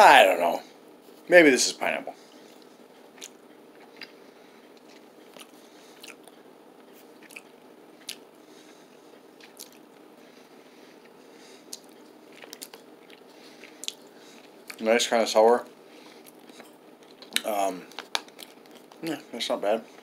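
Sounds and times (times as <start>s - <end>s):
mouth clicks and smacks eating: 2.6s - 4.2s, 7.2s - 8.3s, 9.4s - 10.0s, 11.7s - 14.8s.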